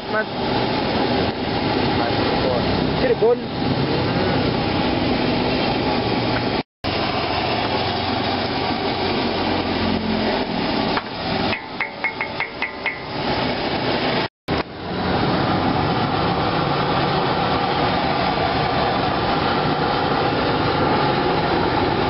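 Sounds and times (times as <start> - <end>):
spatula tapping wok: 11.5 - 13.2.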